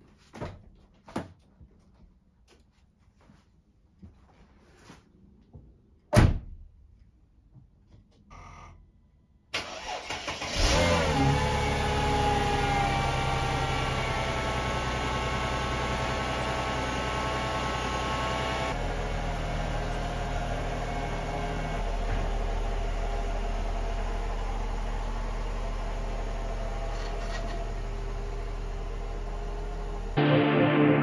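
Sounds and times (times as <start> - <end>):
car engine idling: 11.6 - 30.5
music: 30.2 - 31.0.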